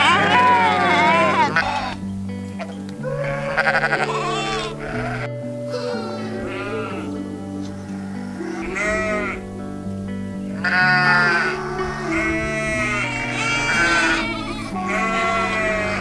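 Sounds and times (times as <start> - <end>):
sheep bleating: 0.0 - 9.7, 10.5 - 16.0
background music: 0.0 - 16.0.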